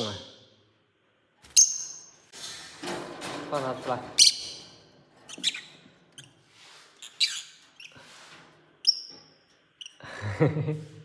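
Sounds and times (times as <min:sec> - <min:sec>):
parrots chirping: 0:04.2 - 0:08.0, 0:08.8 - 0:10.0.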